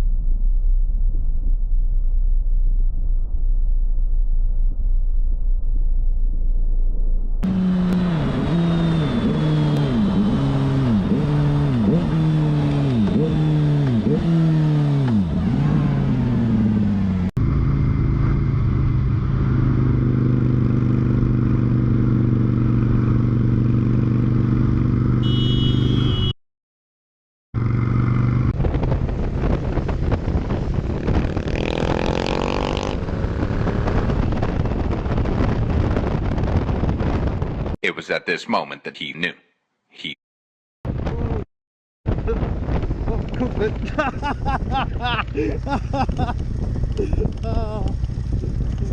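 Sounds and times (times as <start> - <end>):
motorcycle engine accelerating: 0.0 - 26.3, 27.6 - 37.8, 42.1 - 48.9
wind noise: 28.3 - 32.2, 32.8 - 37.8, 40.9 - 41.4, 42.1 - 48.9.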